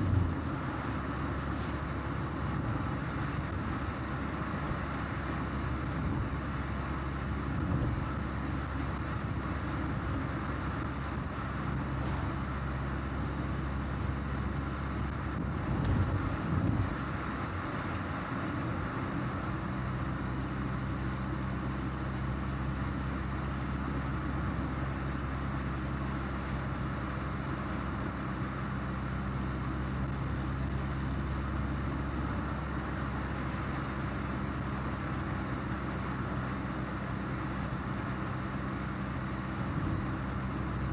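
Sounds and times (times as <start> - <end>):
car engine running: 0.0 - 19.5
road noise: 0.0 - 40.9.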